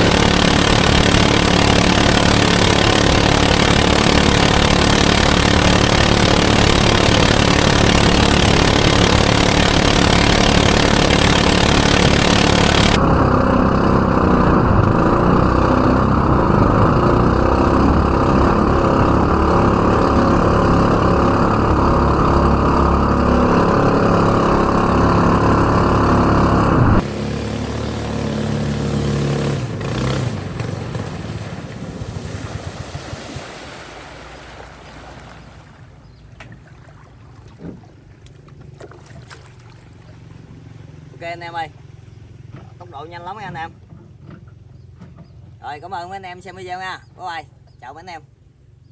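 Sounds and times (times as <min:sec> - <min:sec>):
outboard motor running hard: 0:00.0 - 0:45.6
wind and water rushing: 0:29.7 - 0:36.0.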